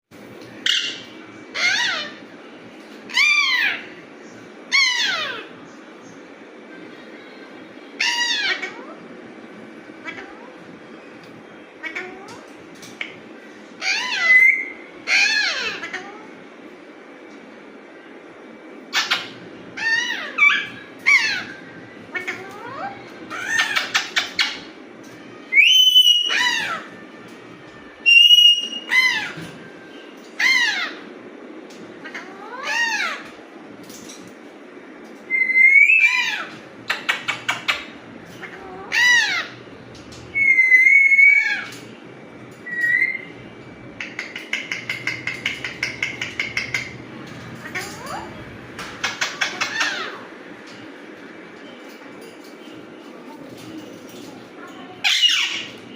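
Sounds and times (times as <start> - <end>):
harsh parakeet calls: 0.6 - 2.3, 4.7 - 5.5, 8.0 - 9.0, 13.8 - 16.3, 18.9 - 24.7, 25.5 - 27.0, 28.0 - 29.5, 30.4 - 31.2, 32.0 - 33.4, 35.3 - 42.0, 42.6 - 43.4, 44.0 - 50.4, 55.0 - 55.9
parakeet whistle: 25.5 - 26.9, 28.0 - 29.4, 35.3 - 36.5, 40.3 - 41.7, 42.6 - 43.3
parakeet chattering: 35.3 - 39.6, 43.9 - 50.3, 55.0 - 55.8.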